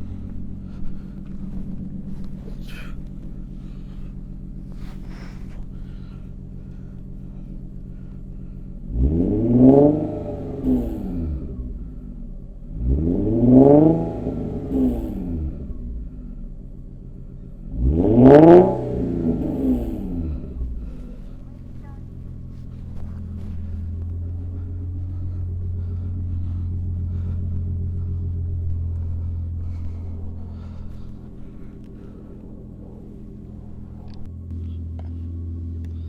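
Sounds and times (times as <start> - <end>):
car engine idling and revving: 0.0 - 36.0.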